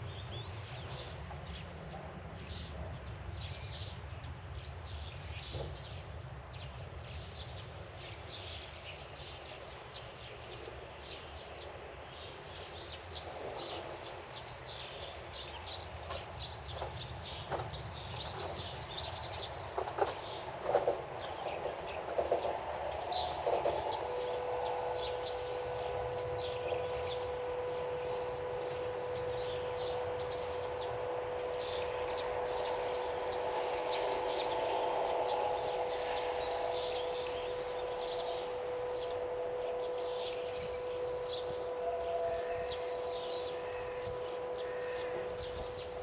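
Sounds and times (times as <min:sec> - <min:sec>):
steady humming tone: 0:00.0 - 0:46.0
steady outdoor hiss: 0:00.0 - 0:46.0
birds chirping: 0:08.0 - 0:46.0.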